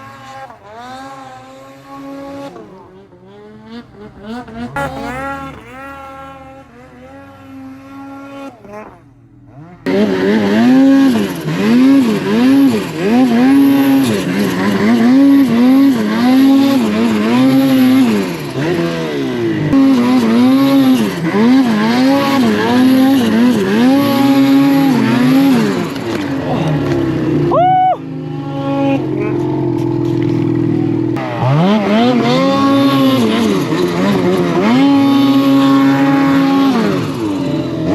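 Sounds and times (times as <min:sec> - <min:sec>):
snowmobile engine revving: 0:00.0 - 0:37.9.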